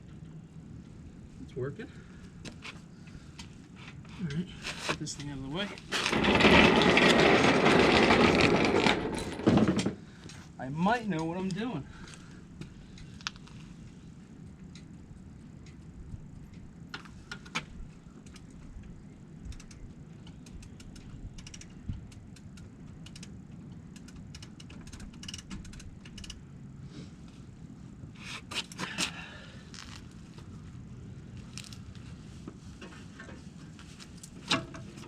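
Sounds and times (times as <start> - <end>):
steady low rumble: 0.0 - 34.4
metallic clicks and clanks: 19.5 - 26.4.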